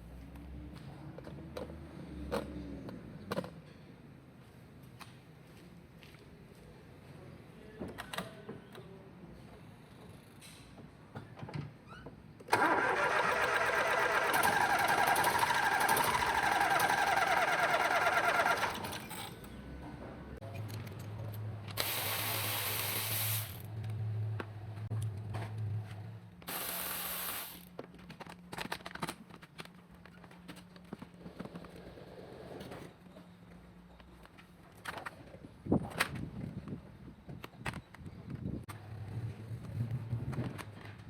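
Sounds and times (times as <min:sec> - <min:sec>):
engine cranking on starter: 0:12.5 - 0:19.5
short bursts of hiss: 0:21.8 - 0:23.7, 0:26.5 - 0:27.7.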